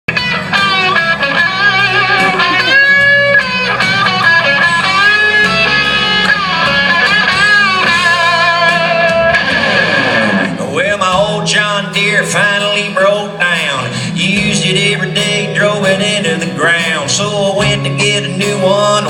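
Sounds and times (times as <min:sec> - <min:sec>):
lead guitar with bent notes: 0:00.1 - 0:19.0
strummed guitar accompaniment: 0:00.1 - 0:19.0.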